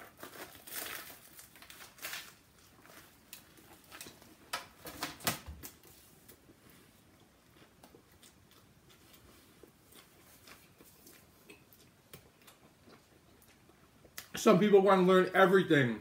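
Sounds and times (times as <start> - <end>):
crunchy chewing: 7.1 - 14.3.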